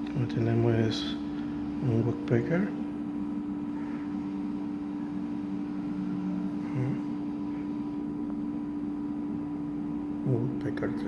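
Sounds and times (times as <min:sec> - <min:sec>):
low hum: 0:00.0 - 0:11.0
room noise hiss: 0:00.0 - 0:11.0.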